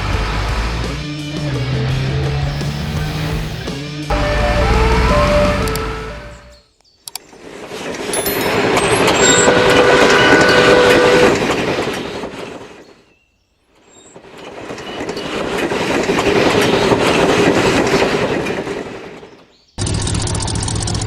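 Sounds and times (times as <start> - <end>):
train rumbling and clacking: 0.0 - 6.6, 8.5 - 12.8, 14.2 - 19.3
train horn tone: 4.1 - 6.6, 9.1 - 11.7.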